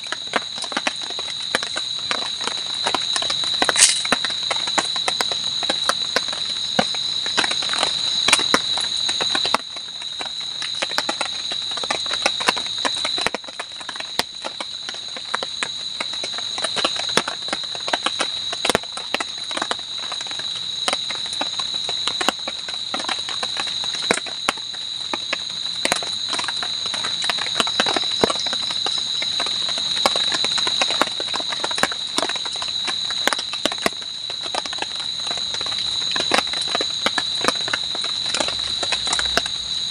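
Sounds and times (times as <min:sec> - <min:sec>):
night insects chirring: 0:00.0 - 0:39.9
sharp clicks and crackles: 0:03.7 - 0:04.3.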